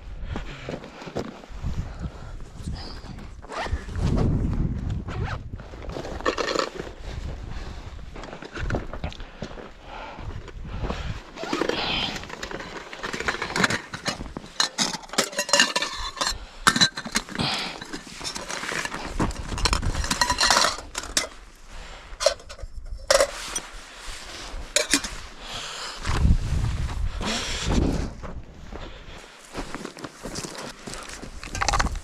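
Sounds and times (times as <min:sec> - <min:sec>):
metal clinking and scraping: 0:06.2 - 0:06.8, 0:11.4 - 0:21.4, 0:22.2 - 0:23.8, 0:24.5 - 0:25.3, 0:30.4 - 0:32.0.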